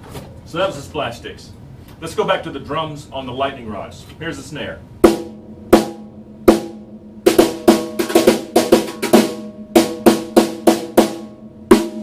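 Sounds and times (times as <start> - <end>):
snare drum hits: 5.1 - 12.0.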